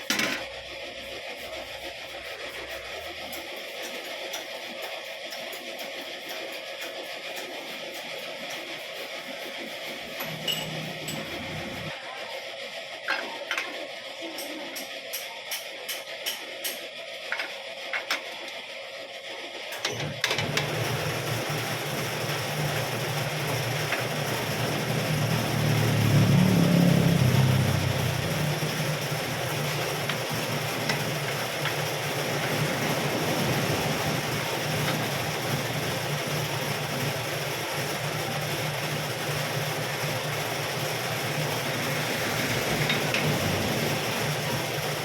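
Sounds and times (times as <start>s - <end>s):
metal lathe hum: 10.0s - 11.9s
lathe cutting metal: 19.9s - 37.2s.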